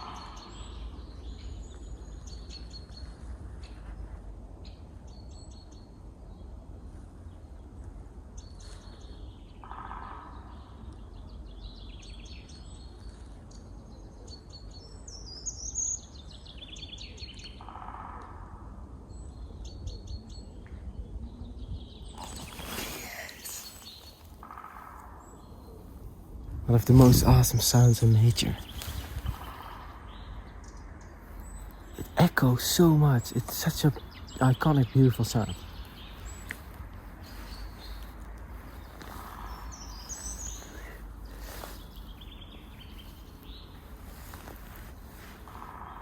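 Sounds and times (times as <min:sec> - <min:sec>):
songbird chirps: 0:00.0 - 0:46.0
steady low rumble: 0:23.1 - 0:46.0
bird trill: 0:38.7 - 0:44.5.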